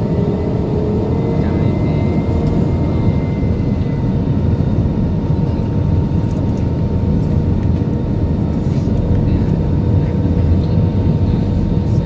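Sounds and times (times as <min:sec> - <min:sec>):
faint steady whine tones: 0:00.0 - 0:07.0
aircraft cabin engine rumble: 0:00.0 - 0:12.0.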